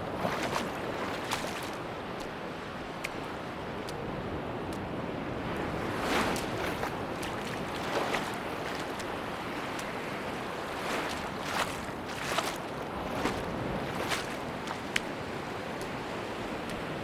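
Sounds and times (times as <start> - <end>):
surf rushing on a beach: 0.0 - 17.0
wave splashes: 0.0 - 17.0.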